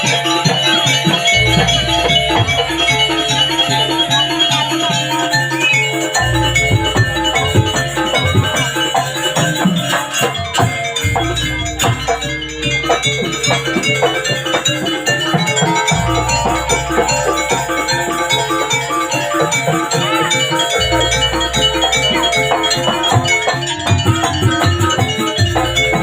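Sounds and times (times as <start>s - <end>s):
tuned metal percussion: 0.0s - 26.0s
drums playing quick rhythm: 5.9s - 26.0s.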